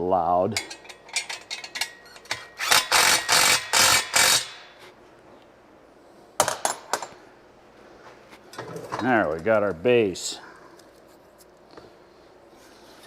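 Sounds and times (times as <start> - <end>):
impact wrench bursts: 2.3 - 4.7.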